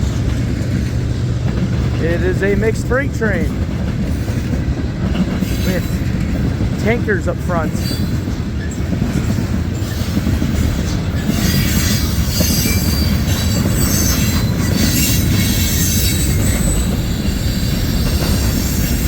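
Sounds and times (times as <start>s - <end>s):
train wheels rumbling on rail: 0.0s - 19.0s
high-pitched wheel squeal: 11.2s - 19.0s.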